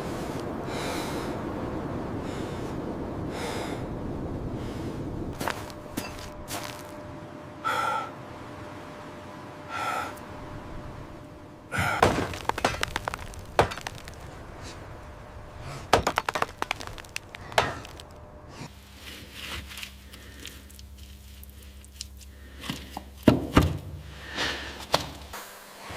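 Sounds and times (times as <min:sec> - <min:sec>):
low steady hum: 0:00.0 - 0:25.9
sharp cracks and knocks: 0:11.9 - 0:14.4, 0:15.8 - 0:18.2, 0:24.8 - 0:25.4.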